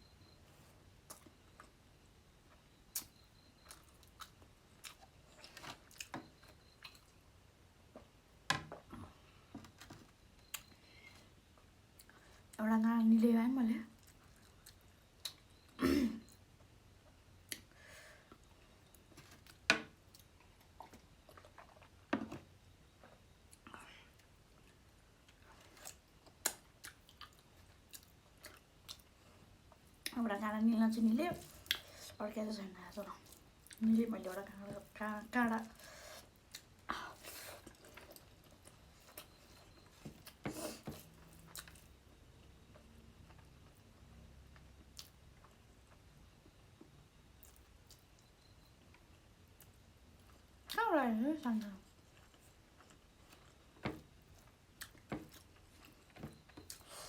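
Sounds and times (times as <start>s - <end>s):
soft chewing: 0.2s - 1.8s, 2.5s - 7.3s, 7.9s - 12.6s, 13.9s - 30.2s, 31.0s - 50.8s, 51.6s - 57.0s
chewing with mouth clicks: 2.9s - 7.2s, 14.0s - 16.4s, 23.1s - 30.2s, 31.4s - 32.2s, 35.6s - 42.0s, 51.9s - 57.0s.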